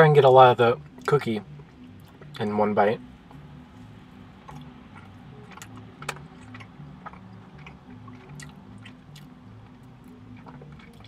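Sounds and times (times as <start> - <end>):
person chewing: 3.3 - 11.0.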